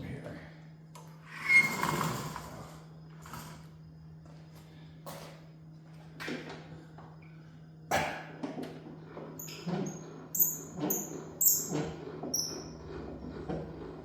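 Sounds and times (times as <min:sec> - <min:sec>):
high-pitched squeaks: 0:09.4 - 0:12.8.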